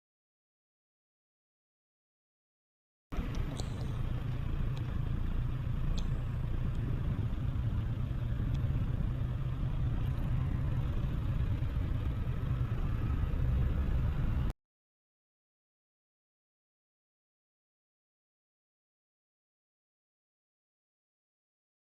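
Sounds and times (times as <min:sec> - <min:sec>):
motorcycle engine rumbling: 0:03.1 - 0:14.5.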